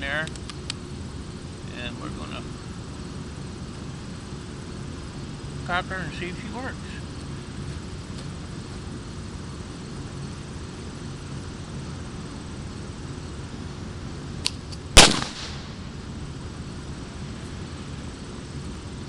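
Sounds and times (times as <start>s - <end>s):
low background hum: 0.0s - 19.0s
loud firecracker bang: 15.0s - 15.9s.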